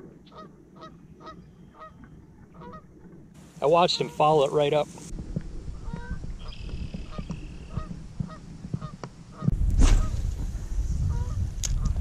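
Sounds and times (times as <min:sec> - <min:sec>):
distant birds calling: 0:00.0 - 0:10.2
low rumble: 0:05.1 - 0:08.4, 0:09.4 - 0:12.0
sharp clicks: 0:11.6 - 0:12.0.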